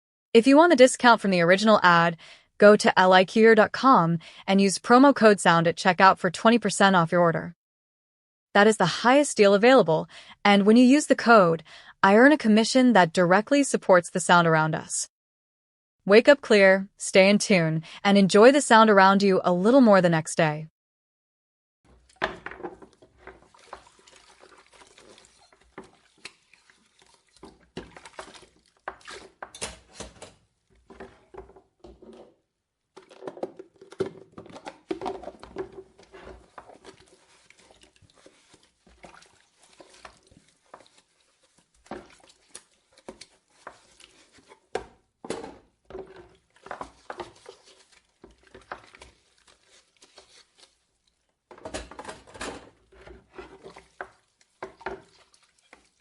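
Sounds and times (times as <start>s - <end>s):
water splashing: 22.8s - 29.4s, 35.4s - 44.5s, 53.4s - 56.0s.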